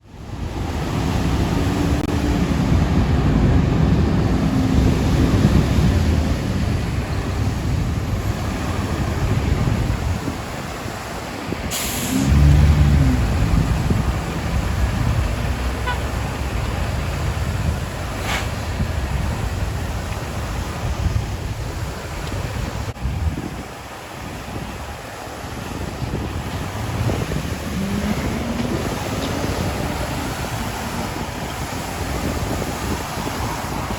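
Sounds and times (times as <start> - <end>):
fire engine diesel engine: 0.1 - 21.3, 25.1 - 33.9
air brake hiss: 11.7 - 12.3, 18.2 - 18.6.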